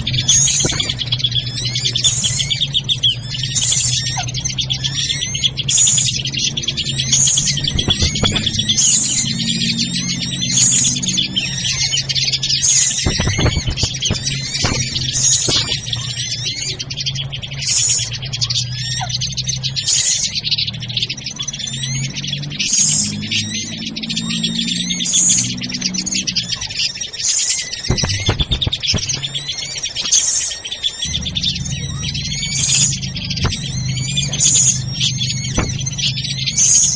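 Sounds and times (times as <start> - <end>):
steady low hum: 0.0 - 22.6, 27.9 - 29.9, 31.0 - 36.9
birds chattering and calling: 0.0 - 36.9.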